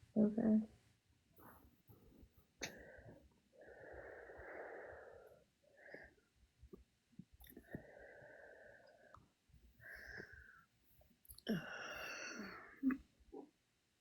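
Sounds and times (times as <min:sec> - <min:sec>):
faint breathing: 0:01.4 - 0:06.4, 0:07.4 - 0:12.8.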